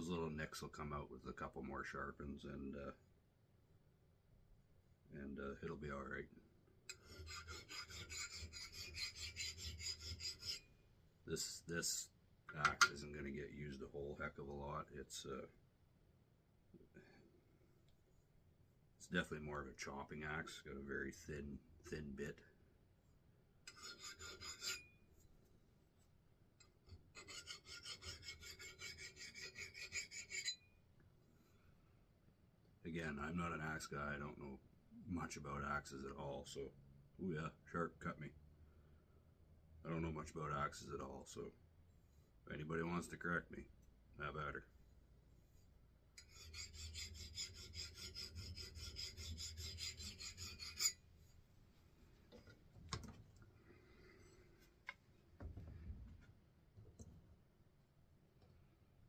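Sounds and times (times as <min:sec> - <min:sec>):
sharpening strokes on axe head: 0:06.9 - 0:10.7, 0:23.7 - 0:25.0, 0:27.2 - 0:30.6, 0:45.4 - 0:51.1.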